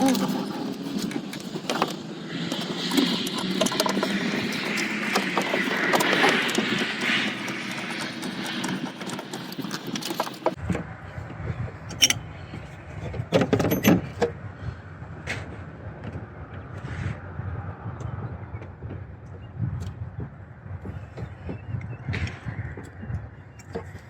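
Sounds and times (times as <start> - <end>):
metal tools clinking and rattling: 11.8 - 12.3, 13.3 - 14.2.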